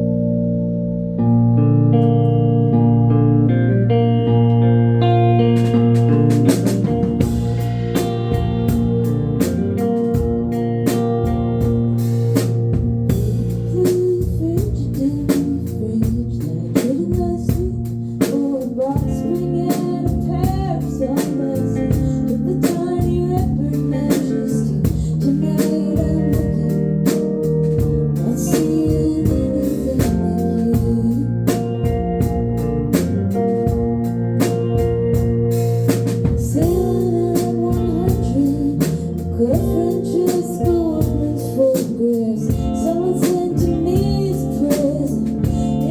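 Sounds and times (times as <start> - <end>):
live band playing: 2.0 - 45.9
drum kit beat: 5.2 - 45.9
person singing: 13.1 - 31.8, 36.4 - 45.9.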